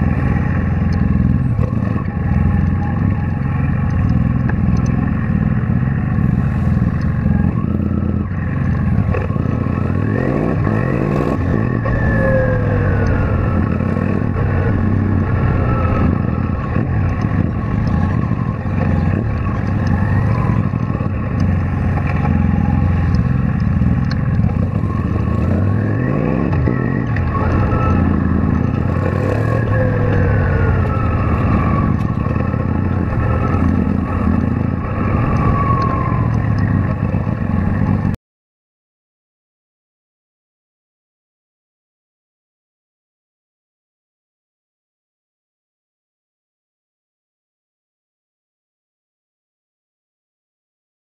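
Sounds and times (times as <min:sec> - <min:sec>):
motorcycle engine revving: 0:00.0 - 0:38.2.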